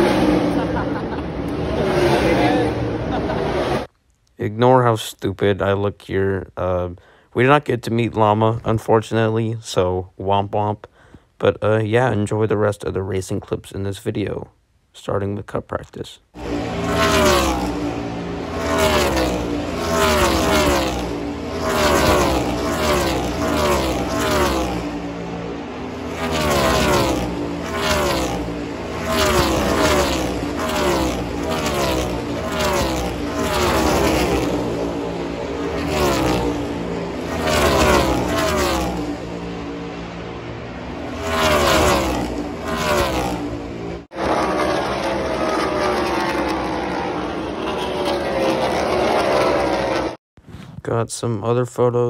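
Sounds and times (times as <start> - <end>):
race car engines passing: 0.0 - 3.9, 16.4 - 50.2.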